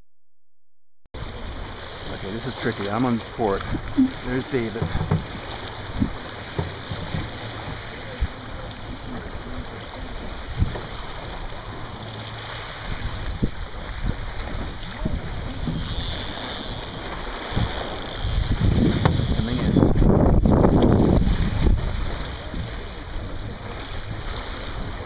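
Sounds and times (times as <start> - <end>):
water washing along hull: 1.2 - 25.0
light knocks from boat: 3.6 - 9.4, 10.3 - 16.0, 18.9 - 19.7
wind buffeting microphone: 12.8 - 16.1, 17.0 - 25.0.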